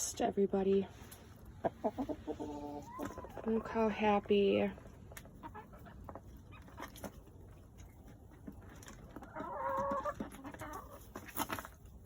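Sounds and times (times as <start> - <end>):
hens clucking softly: 1.1 - 4.0, 4.8 - 11.2
hens pecking taps: 2.8 - 11.7.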